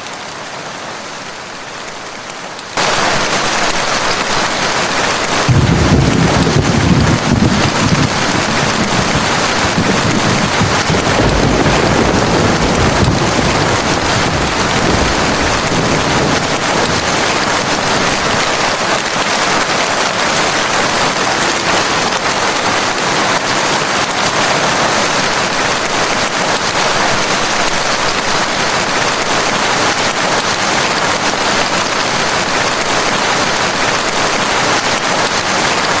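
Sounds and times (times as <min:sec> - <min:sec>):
heavy rain falling: 0:00.0 - 0:36.0
thunder rumbling: 0:02.8 - 0:36.0.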